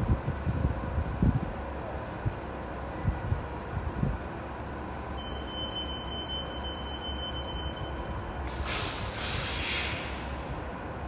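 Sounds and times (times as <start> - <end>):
train rumbling: 0.0 - 11.0
air hiss: 8.4 - 10.5.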